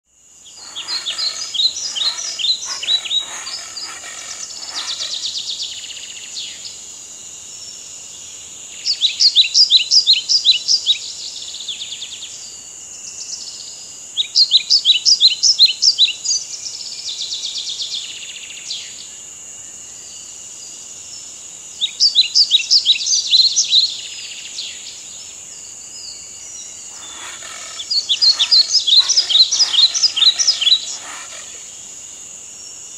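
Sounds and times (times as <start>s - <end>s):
bird chirping: 0.5s - 5.8s, 26.6s - 31.8s
high-pitched insect drone: 0.6s - 5.6s, 26.8s - 32.2s.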